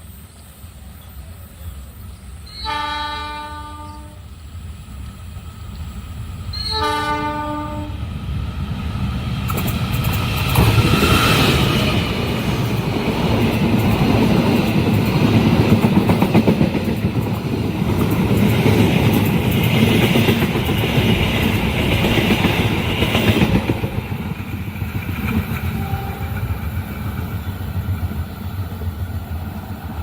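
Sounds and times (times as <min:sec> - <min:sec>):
train rumble and wheel noise: 0:00.0 - 0:30.0
train horn blasts: 0:02.5 - 0:04.3, 0:06.5 - 0:08.0, 0:25.7 - 0:26.5.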